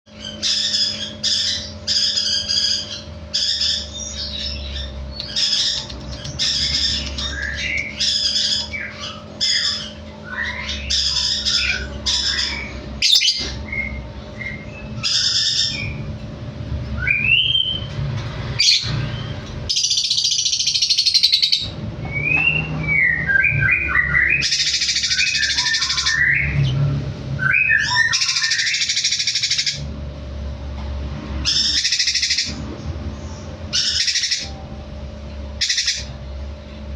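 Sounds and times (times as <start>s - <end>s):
songbird singing buzzy notes: 0.1s - 18.0s, 18.6s - 29.9s.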